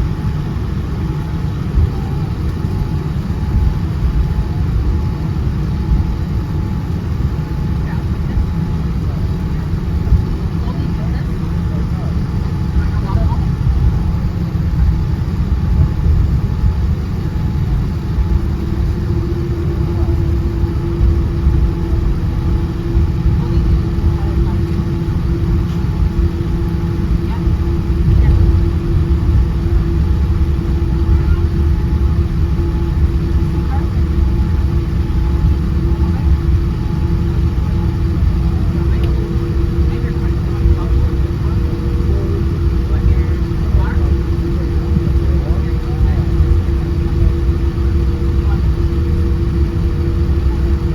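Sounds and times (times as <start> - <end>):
airliner engines rumbling: 0.0 - 50.9
steady hum: 0.0 - 50.9.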